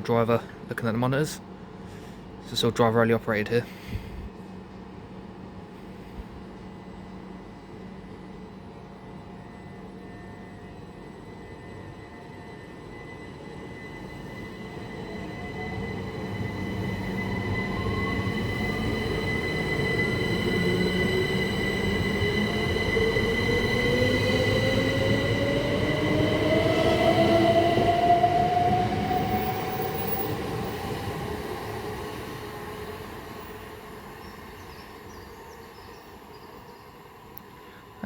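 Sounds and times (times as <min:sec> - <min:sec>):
electric train motors whining: 0:12.0 - 0:37.9.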